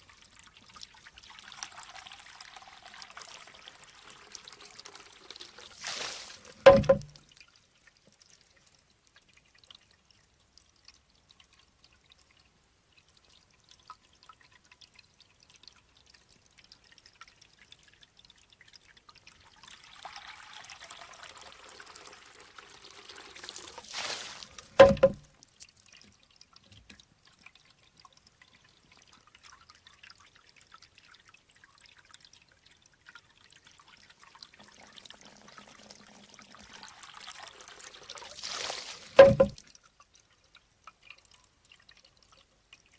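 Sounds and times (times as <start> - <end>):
water trickling into bamboo tube: 0.0 - 42.9
bamboo tube knocking on stone: 6.6 - 7.2, 24.8 - 25.3, 39.2 - 39.6.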